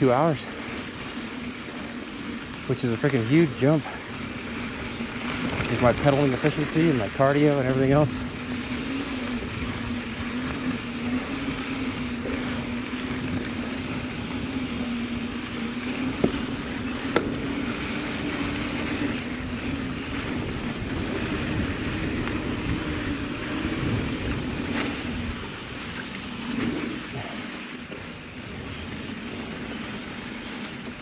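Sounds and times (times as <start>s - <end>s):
steady low hum: 0.0s - 31.0s
wind on microphone: 4.9s - 27.6s.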